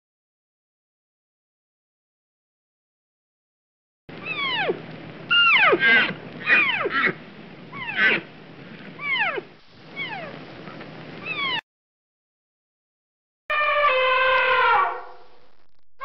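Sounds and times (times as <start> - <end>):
animal cries sliding downward: 4.2 - 7.2, 7.8 - 8.3, 9.0 - 10.4, 11.2 - 11.6, 13.5 - 15.2.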